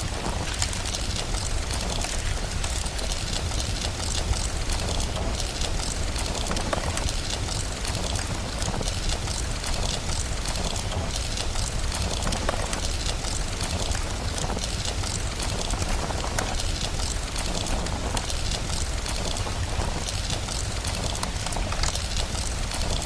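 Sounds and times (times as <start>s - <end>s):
steady rain: 0.0s - 23.0s
wood fire crackling: 0.0s - 23.0s.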